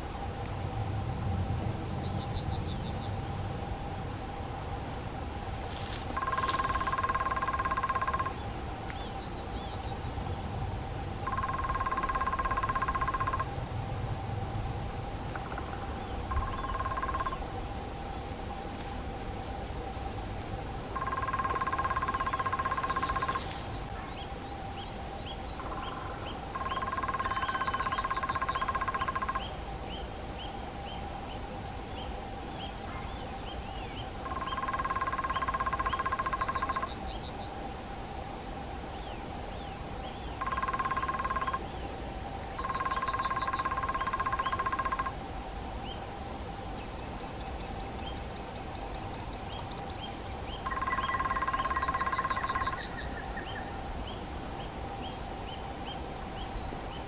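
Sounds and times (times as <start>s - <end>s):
woodpecker drumming: 6.1s - 8.4s, 11.2s - 13.5s, 15.3s - 17.4s, 21.0s - 23.6s, 25.6s - 29.5s, 34.2s - 37.0s, 40.4s - 41.6s, 42.6s - 45.1s, 50.6s - 52.9s
small birds chirping: 15.4s - 17.4s, 21.0s - 46.1s, 46.8s - 57.0s.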